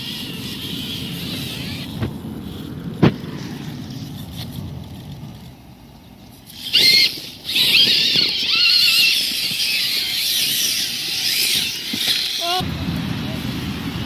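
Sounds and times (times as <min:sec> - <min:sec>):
electric motor and gears whining: 0:00.0 - 0:14.0.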